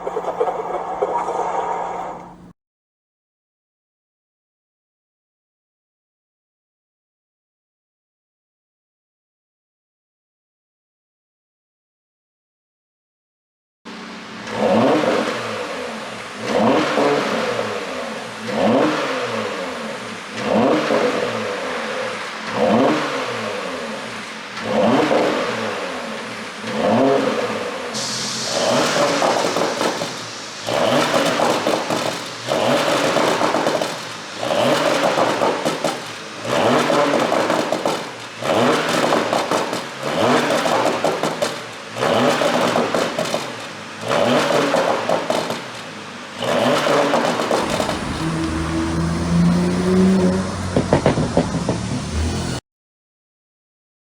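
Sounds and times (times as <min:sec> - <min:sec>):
car engine revving: 0:13.9 - 0:52.6
exhaust popping and crackling: 0:28.0 - 0:52.6.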